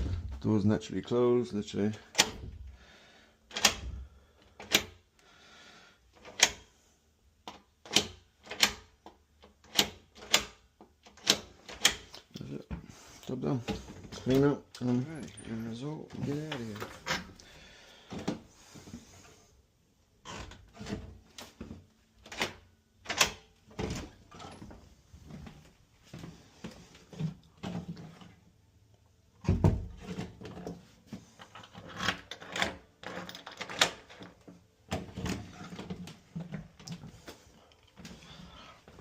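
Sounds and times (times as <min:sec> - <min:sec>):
tools and door hardware clattering: 0:20.3 - 0:24.8, 0:29.4 - 0:37.0.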